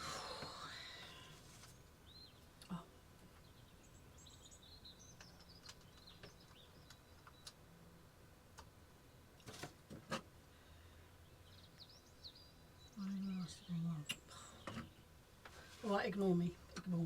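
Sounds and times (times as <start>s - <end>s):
faint bird chirps: 0.0s - 7.9s, 10.6s - 15.7s.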